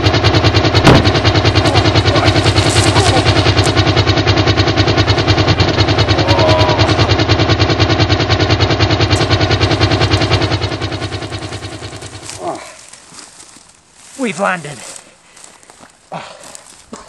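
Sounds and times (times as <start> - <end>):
helicopter rotor chopping: 0.0 - 12.7.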